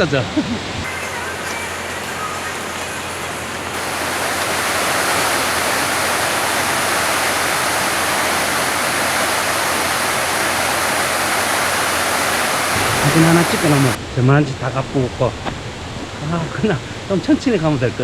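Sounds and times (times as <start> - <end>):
small waterfall rushing: 0.0 - 14.0.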